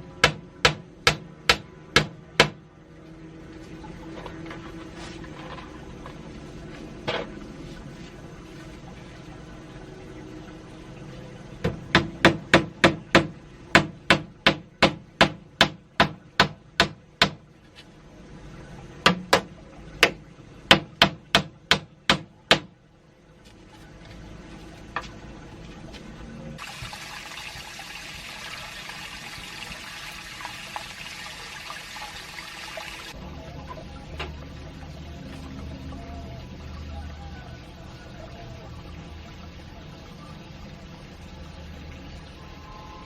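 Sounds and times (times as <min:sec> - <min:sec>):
sharp knocks: 0:00.2 - 0:02.6, 0:11.6 - 0:17.4.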